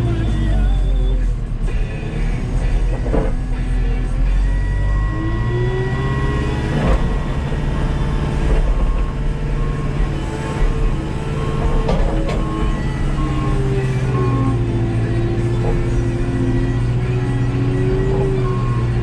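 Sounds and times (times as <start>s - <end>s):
background music with repeating notes: 0.0s - 19.0s
skid steer engine running: 0.0s - 19.0s.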